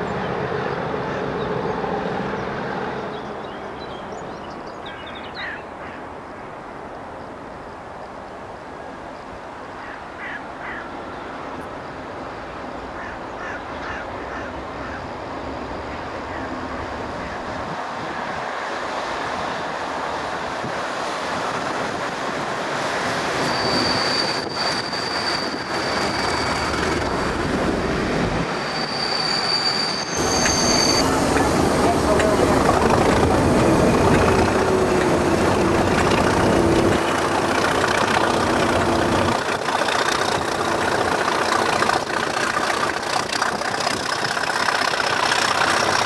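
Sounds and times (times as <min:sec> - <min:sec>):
diesel locomotive engine: 0:00.0 - 0:46.0
heavy train rumble: 0:10.9 - 0:46.0
high wheel squeal: 0:23.0 - 0:27.8, 0:28.4 - 0:46.0.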